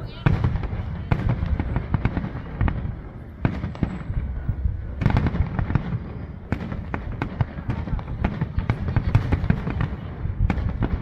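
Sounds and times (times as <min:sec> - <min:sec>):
fireworks bangs and crackles: 0:00.0 - 0:11.0
low rumble: 0:00.5 - 0:09.0.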